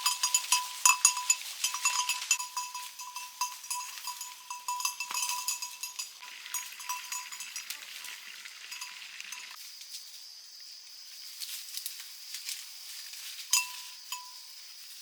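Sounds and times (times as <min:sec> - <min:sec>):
small metal bell clinking: 0:00.0 - 0:09.6, 0:13.5 - 0:14.6.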